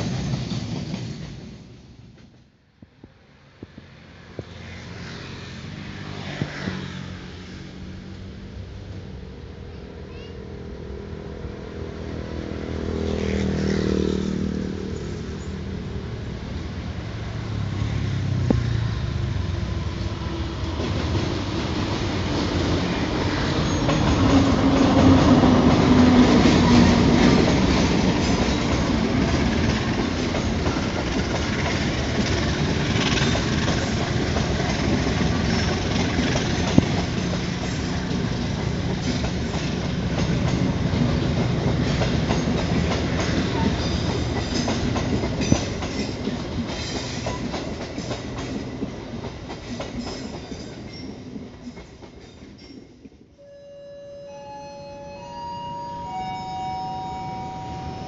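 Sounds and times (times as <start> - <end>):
diesel locomotive engine: 3.0 - 52.2, 53.0 - 58.0
train wheels clattering: 20.7 - 53.2.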